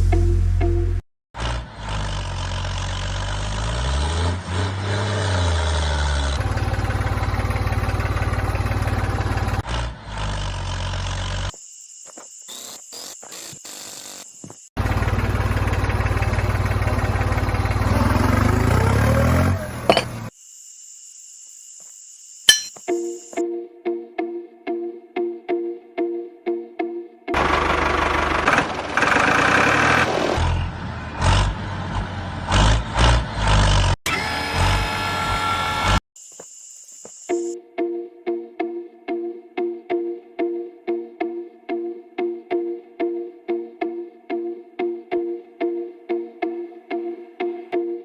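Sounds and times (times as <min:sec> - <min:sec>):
small motor buzzing: 0:34.1 - 0:37.5.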